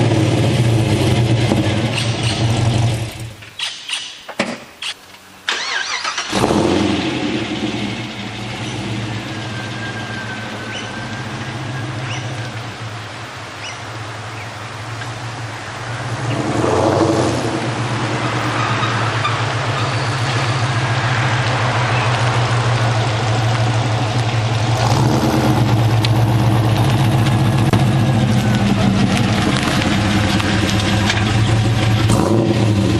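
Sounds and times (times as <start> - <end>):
car engine exhaust note revving: 6.3 - 13.2, 13.9 - 32.9.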